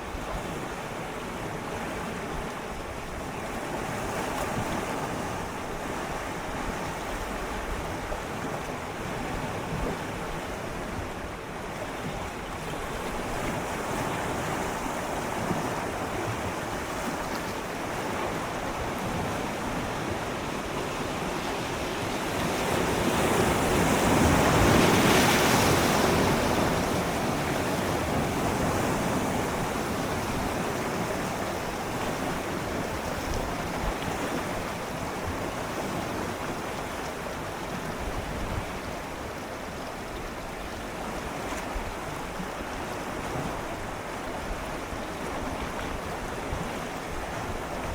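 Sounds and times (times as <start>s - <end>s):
sea waves lapping on rocks: 3.5s - 39.4s.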